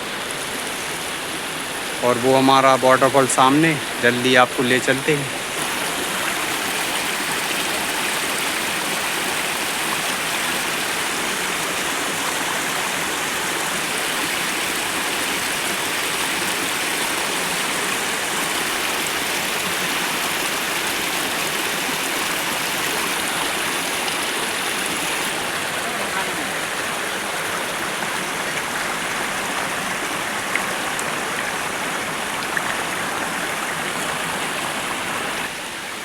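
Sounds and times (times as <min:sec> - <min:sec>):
waterfall rushing water: 0:00.0 - 0:36.0.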